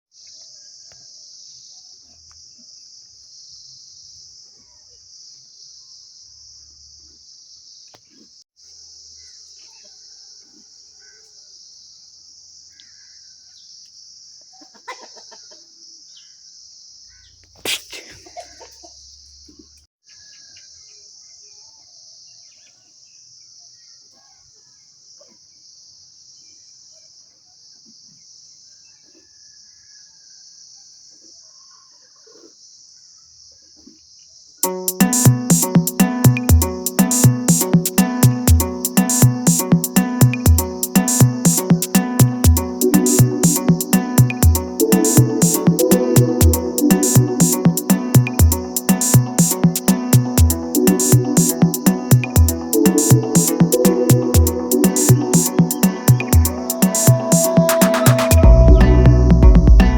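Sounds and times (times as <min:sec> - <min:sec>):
chickens clucking: 0:14.7 - 0:15.6.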